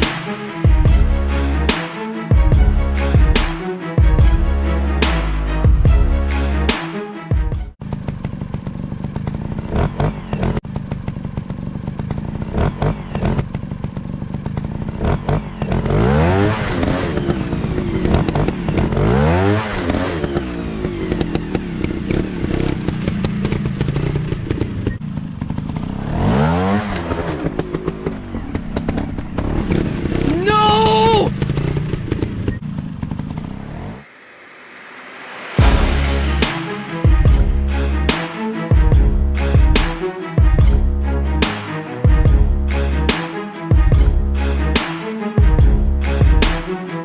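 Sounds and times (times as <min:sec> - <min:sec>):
dirt bike engines revving: 0:07.9 - 0:34.0.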